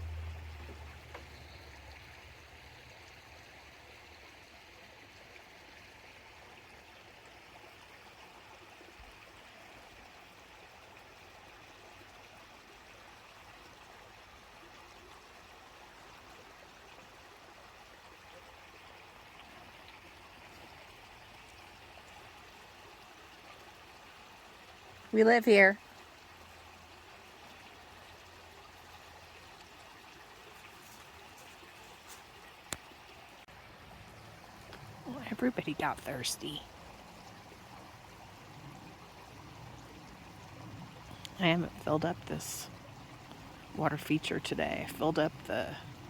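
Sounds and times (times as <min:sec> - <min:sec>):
water trickling over waterfall: 0:00.0 - 0:46.0.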